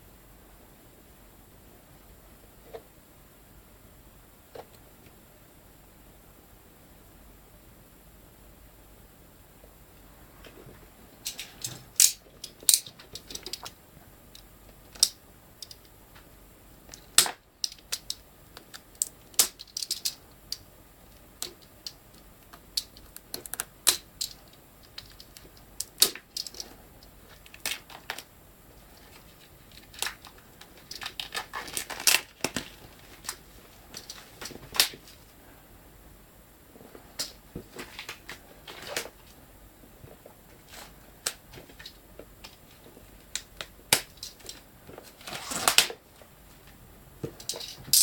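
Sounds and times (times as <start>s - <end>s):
packaging rustling: 28.9s - 35.2s, 44.3s - 46.0s.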